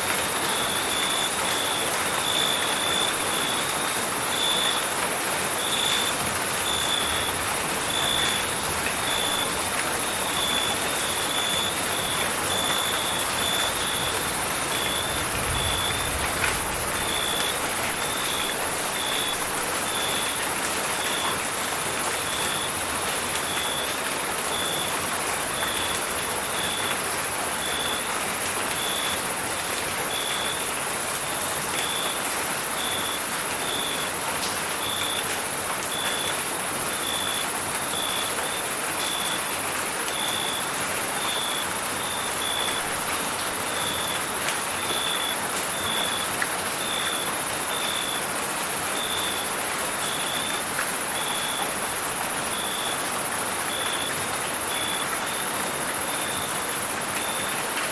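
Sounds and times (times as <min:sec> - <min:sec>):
rain hiss: 0:00.0 - 0:57.9
cricket chirping: 0:10.1 - 0:20.3, 0:44.8 - 0:48.2, 0:49.0 - 0:50.6, 0:51.2 - 0:53.0.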